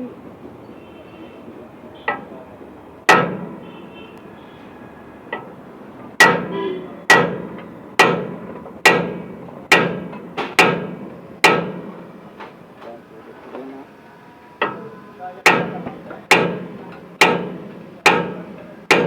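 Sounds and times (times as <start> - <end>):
hammer blows on steel: 14.6 - 19.0.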